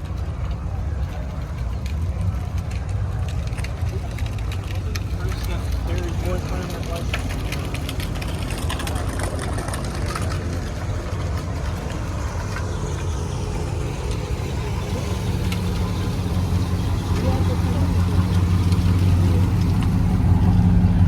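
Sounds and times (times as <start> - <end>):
car engine idling: 0.0 - 21.0
crowd voices: 0.0 - 21.0.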